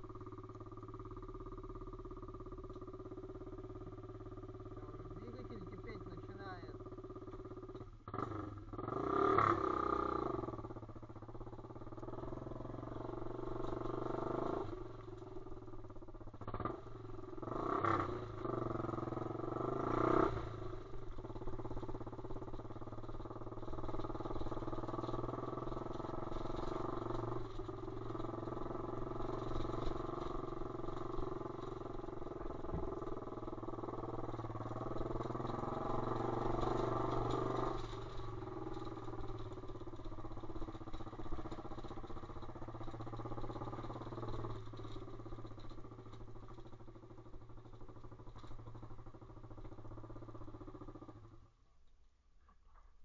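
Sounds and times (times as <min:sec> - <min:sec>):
motorbike engine revving: 0:03.6 - 0:10.9, 0:16.4 - 0:45.6
person speaking: 0:05.1 - 0:06.8.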